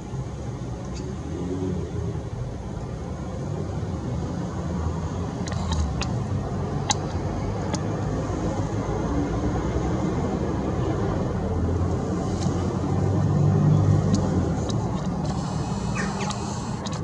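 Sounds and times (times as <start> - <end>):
vehicle engine rumbling: 0.0 - 17.0
faint bird chirps: 15.6 - 16.7.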